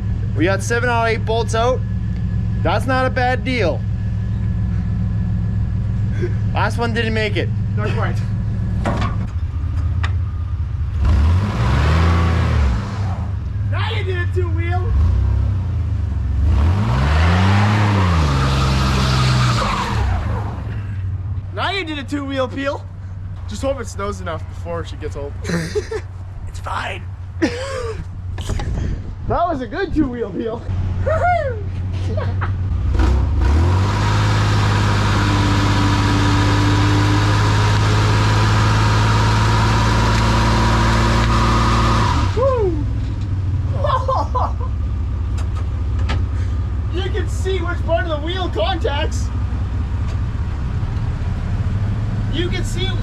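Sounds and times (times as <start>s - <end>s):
truck engine revving: 0.0s - 26.0s, 31.8s - 53.0s
tires squealing on pavement: 11.0s - 14.1s, 16.4s - 21.0s, 33.0s - 43.1s.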